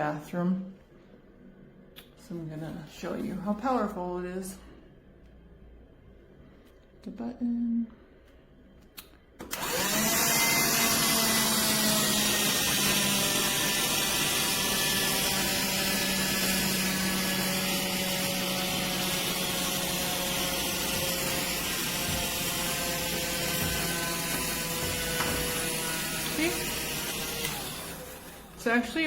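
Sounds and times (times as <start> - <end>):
handheld vacuum whirring: 9.4 - 29.0.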